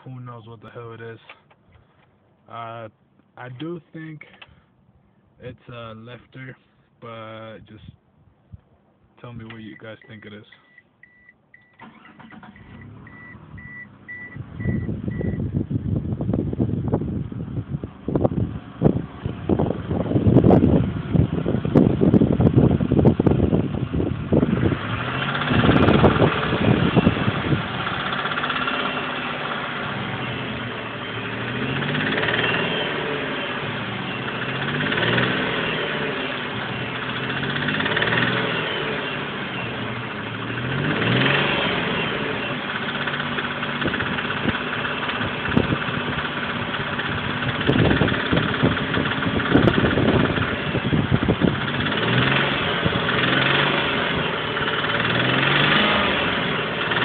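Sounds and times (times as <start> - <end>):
car engine revving: 11.8 - 57.0.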